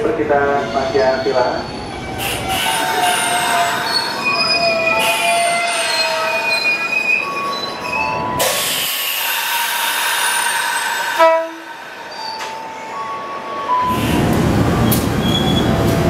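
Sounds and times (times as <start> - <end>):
train wheels and brakes squealing: 0.6 - 16.0
air brake hiss: 8.4 - 12.1.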